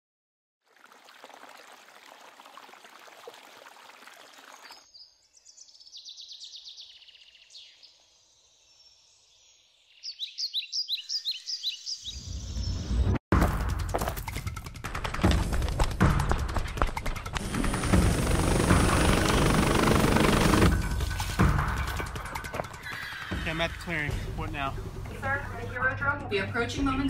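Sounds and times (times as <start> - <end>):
birds singing with trills: 4.7 - 13.1.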